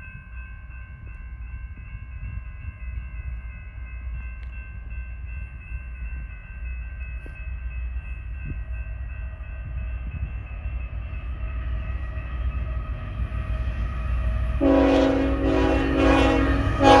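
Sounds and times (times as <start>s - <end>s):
freight train diesel rumble: 0.0s - 17.0s
train air horn: 14.6s - 17.0s.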